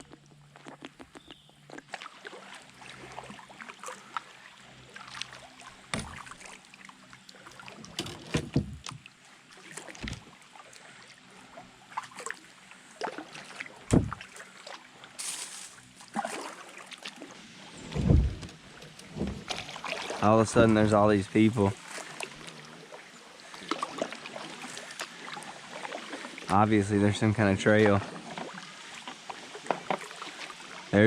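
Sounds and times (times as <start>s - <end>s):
paddle water splashing and dripping: 0.0s - 31.0s
dull thumps: 13.9s - 14.2s.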